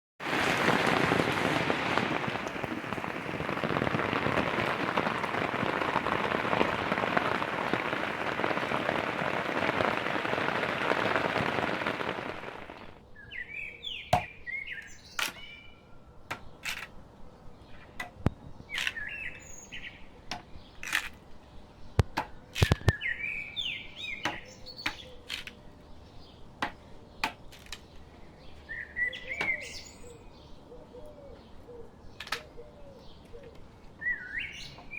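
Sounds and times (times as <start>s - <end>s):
heavy rain pouring: 0.2s - 13.0s
birds chirping: 17.4s - 34.9s
sharp clicks: 22.0s - 23.0s.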